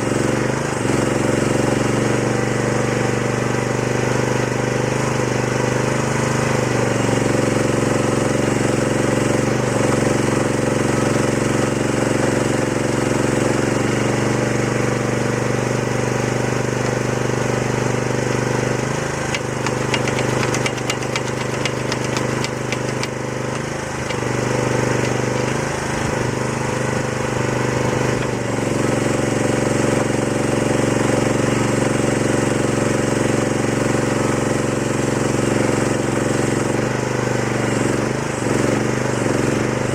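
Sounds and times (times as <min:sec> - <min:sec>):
excavator engine running: 0:14.1 - 0:30.2
rapid clicking and rattling: 0:18.6 - 0:26.5.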